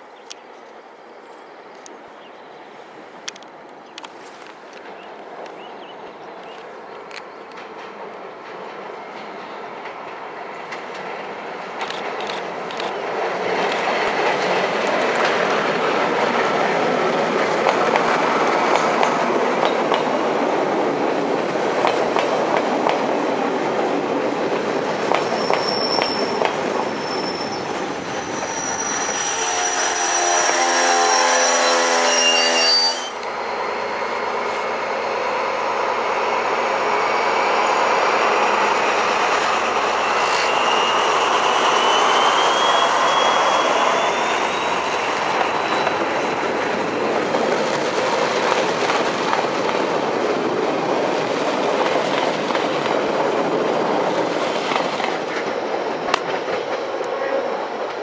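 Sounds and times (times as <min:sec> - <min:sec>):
train passing close by: 0:00.0 - 0:58.0
high-pitched wheel squeal: 0:25.2 - 0:33.3, 0:39.2 - 0:46.1.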